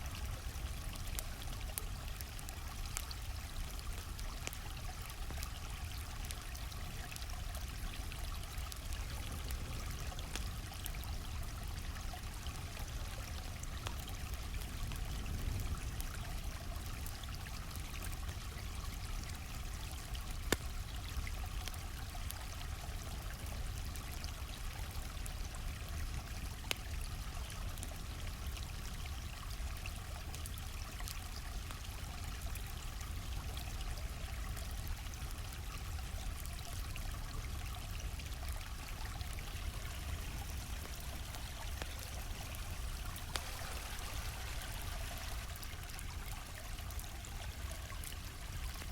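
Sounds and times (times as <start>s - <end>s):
flowing stream: 0.0s - 48.9s
campfire crackling pops: 0.2s - 22.4s, 34.6s - 48.9s.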